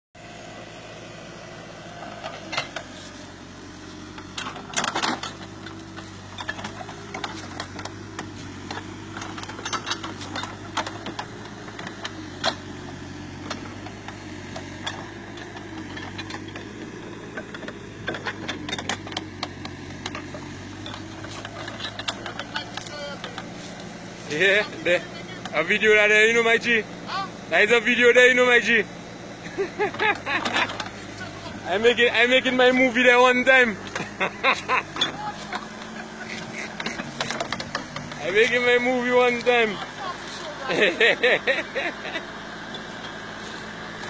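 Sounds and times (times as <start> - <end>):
backhoe engine running: 0.1 - 44.0
sharp metal clanks and knocks: 4.0 - 12.8, 13.4 - 23.8, 33.8 - 40.8.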